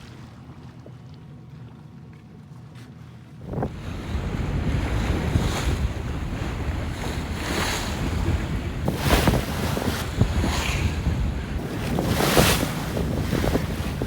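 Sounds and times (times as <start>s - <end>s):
water splashing along a hull: 0.0s - 14.0s
wind buffeting microphone: 3.4s - 14.0s.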